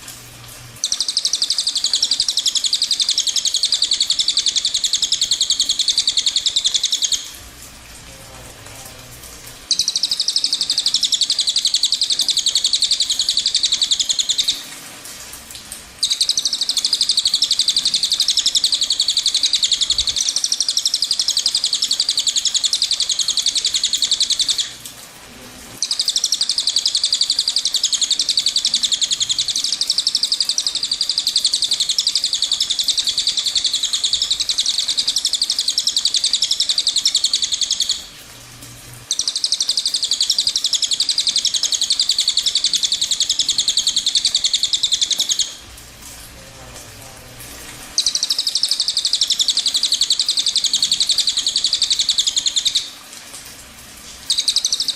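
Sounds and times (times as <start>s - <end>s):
bird singing high trill: 16.0s - 24.7s, 48.0s - 52.9s.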